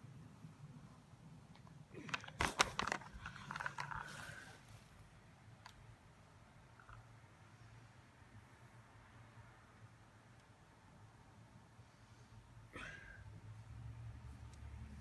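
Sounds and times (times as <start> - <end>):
sharp clicks and clatter: 1.5 - 4.4.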